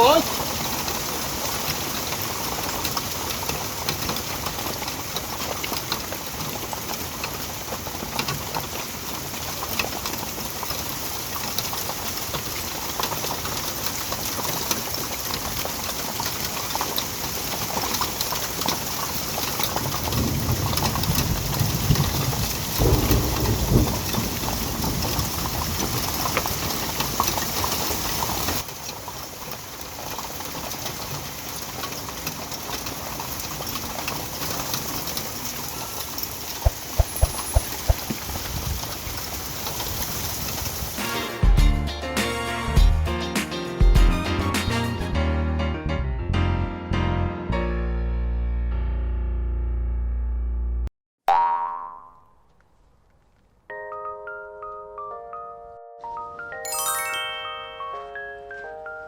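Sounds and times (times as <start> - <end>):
hail and heavy rain pelting: 0.0 - 41.5.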